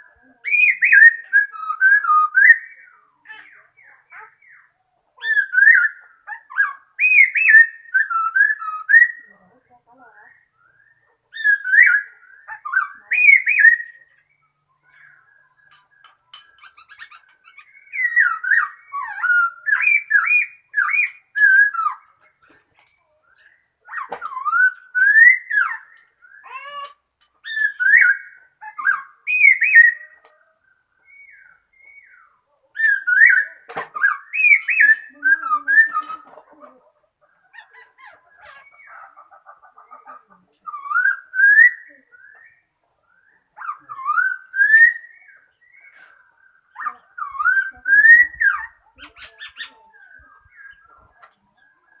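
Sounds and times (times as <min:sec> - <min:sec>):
laughingthrush singing whistled phrases: 0:00.0 - 0:09.3, 0:10.3 - 0:15.2, 0:16.7 - 0:22.2, 0:23.9 - 0:30.2, 0:31.1 - 0:36.5, 0:40.6 - 0:42.7, 0:43.3 - 0:51.1.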